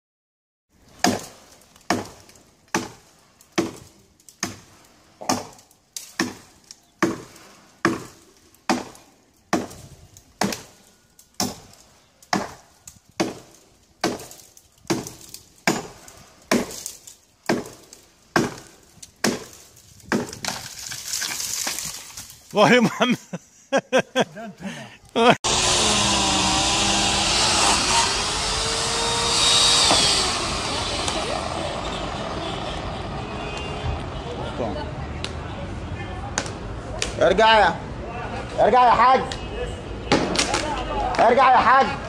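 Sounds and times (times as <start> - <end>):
axe chopping wood: 1.0 - 3.0, 3.6 - 9.8, 10.4 - 10.8, 11.4 - 11.7, 12.3 - 20.6.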